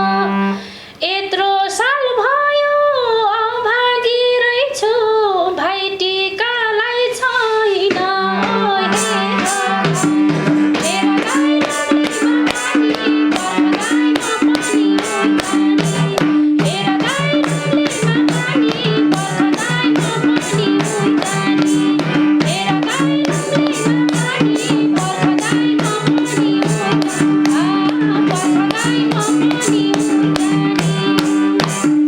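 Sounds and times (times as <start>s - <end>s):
hand drum rhythm: 7.9s - 32.0s
instrumental melody line: 7.9s - 32.0s.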